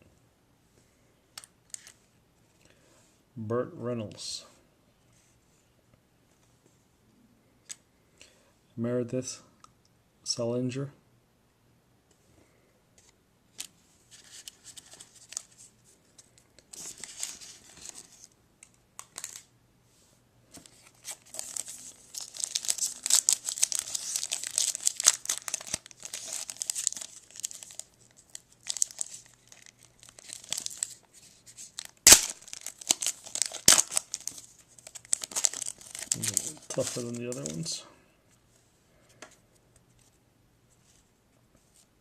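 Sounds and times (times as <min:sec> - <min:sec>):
wrapper tearing and crinkling: 0:19.0 - 0:19.5, 0:20.7 - 0:37.7.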